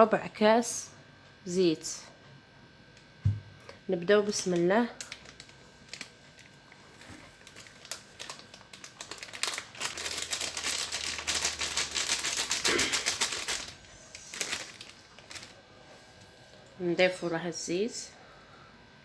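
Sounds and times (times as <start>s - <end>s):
dry ingredients rattling in a bowl: 7.5s - 15.5s.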